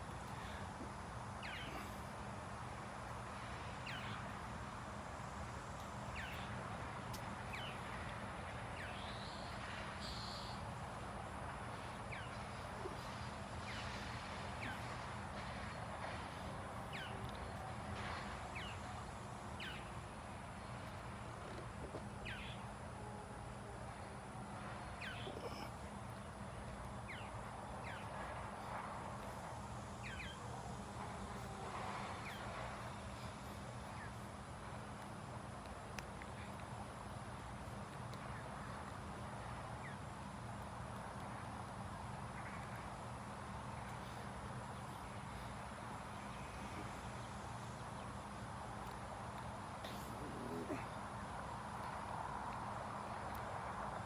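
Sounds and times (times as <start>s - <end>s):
steady background hum: 0.0s - 54.0s
birds chirping: 0.2s - 2.1s, 5.8s - 6.6s, 16.8s - 17.6s, 20.8s - 22.7s, 24.9s - 28.4s.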